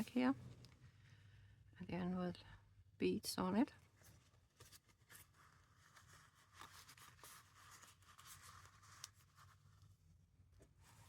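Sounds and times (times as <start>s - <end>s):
paper and card rustling: 4.0s - 9.7s.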